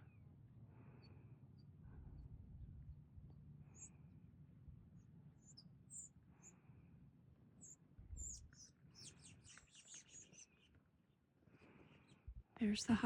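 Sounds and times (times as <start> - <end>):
low wind rumble: 1.8 - 3.6, 12.2 - 13.0
small songbird chirping: 3.6 - 4.0, 5.0 - 6.8, 7.5 - 12.5.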